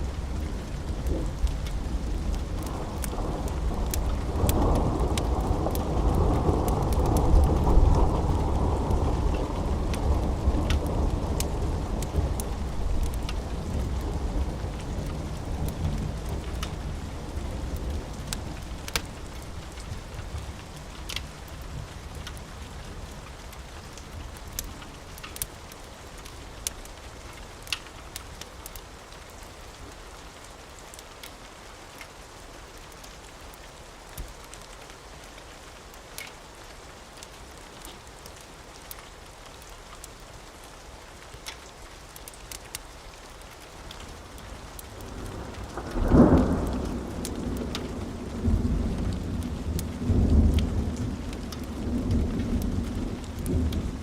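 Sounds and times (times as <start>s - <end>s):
steady rain: 0.0s - 54.0s
wood fire crackling: 0.0s - 54.0s
thunder rumbling: 45.0s - 54.0s.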